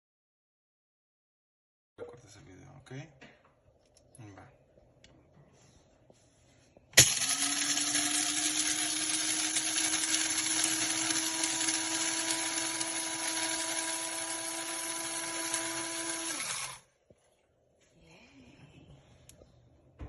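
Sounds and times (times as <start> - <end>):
coffee grinder running: 7.0 - 16.9.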